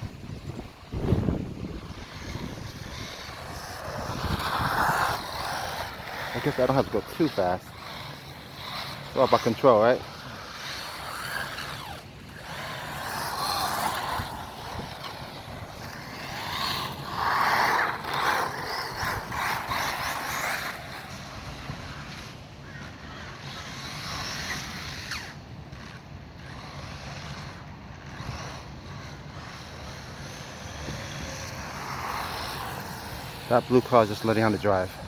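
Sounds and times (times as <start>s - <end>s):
wind buffeting microphone: 0.0s - 23.7s
rc truck motor and tyres: 0.0s - 35.0s.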